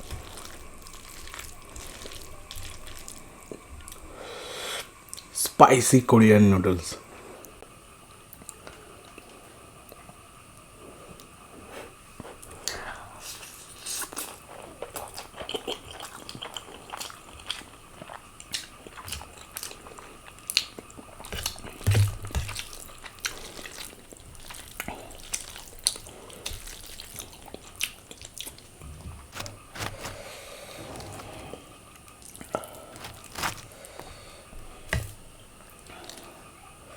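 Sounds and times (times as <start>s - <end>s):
person chewing noodles: 0.0s - 4.0s, 13.8s - 34.3s.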